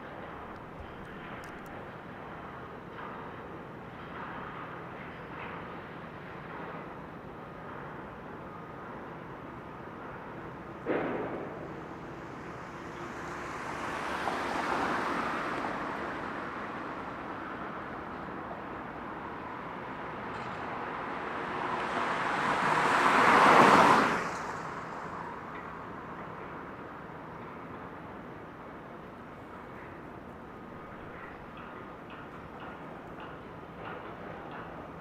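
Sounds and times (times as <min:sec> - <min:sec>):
vehicles passing: 0:10.2 - 0:35.0
sharp knock: 0:10.9 - 0:11.7.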